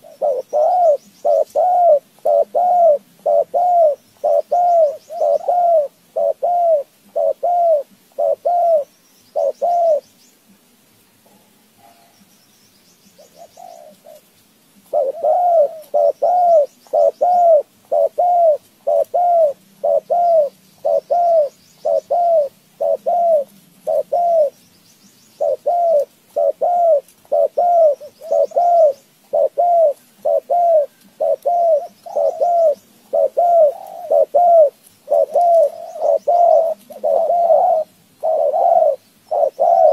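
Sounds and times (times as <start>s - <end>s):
bird calling low arched notes: 14.9s - 24.6s, 25.3s - 39.9s.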